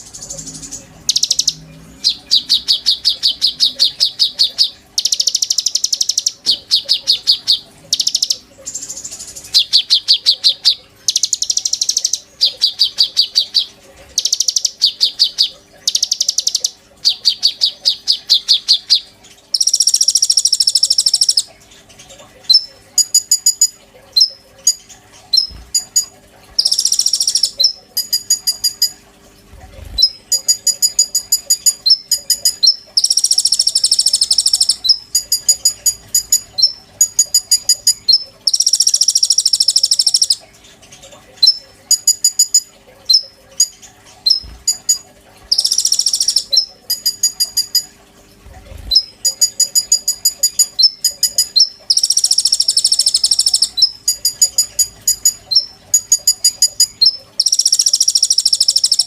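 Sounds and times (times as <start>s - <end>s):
songbird trilling: 0.1s - 21.5s, 22.5s - 29.0s, 29.8s - 40.4s, 44.3s - 47.9s, 48.7s - 59.0s.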